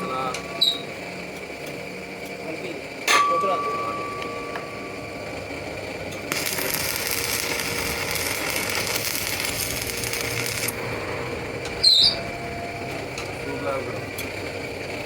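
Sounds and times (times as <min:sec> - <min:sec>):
high-pitched metallic sound: 0:03.0 - 0:14.3.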